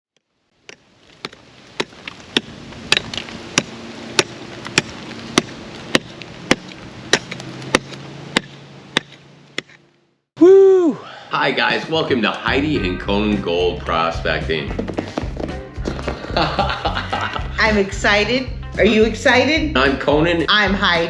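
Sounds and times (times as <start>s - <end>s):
regular ticking: 12.5s - 21.0s.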